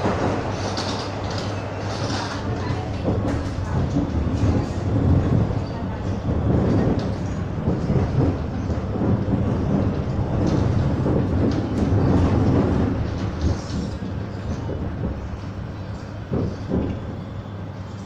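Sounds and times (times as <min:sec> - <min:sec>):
train wheels rumbling on track: 0:00.0 - 0:18.0.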